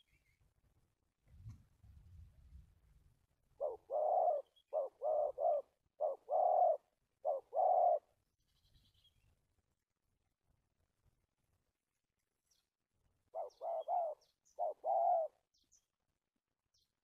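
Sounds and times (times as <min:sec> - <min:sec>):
dove cooing: 0:03.6 - 0:08.1, 0:13.3 - 0:15.4.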